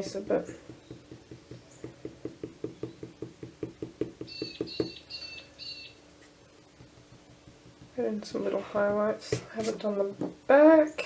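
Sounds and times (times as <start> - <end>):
small bird chirping: 0.4 - 2.0, 4.2 - 6.0
eraser rubbing on paper: 6.8 - 9.9.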